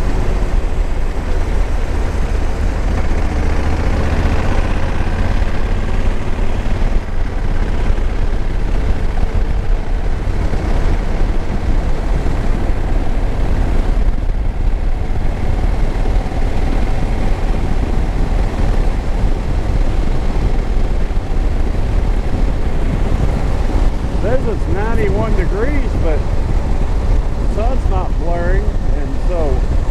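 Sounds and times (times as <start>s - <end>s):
motorcycle engine running: 0.0s - 29.9s
wind rushing over microphone: 0.0s - 29.9s.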